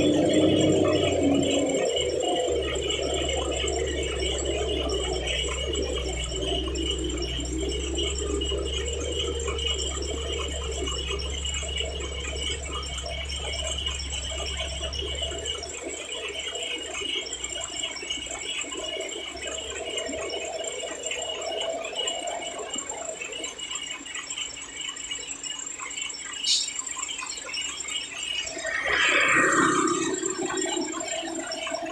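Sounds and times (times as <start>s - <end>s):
truck diesel engine rumbling: 0.0s - 16.0s.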